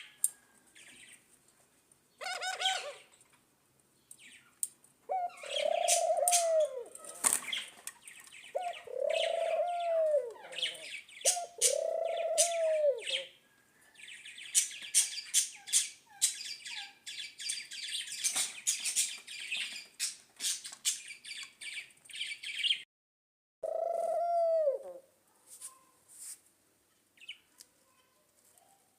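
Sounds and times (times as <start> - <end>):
high bird chirping and twittering: 7.4 - 13.4, 14.0 - 22.8.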